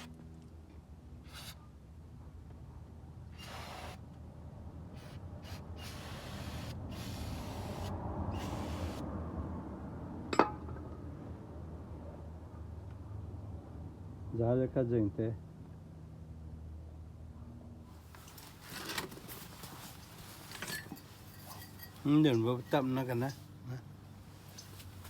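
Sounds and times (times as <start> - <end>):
scrapes and rustles: 17.9 - 23.6, 24.2 - 25.0.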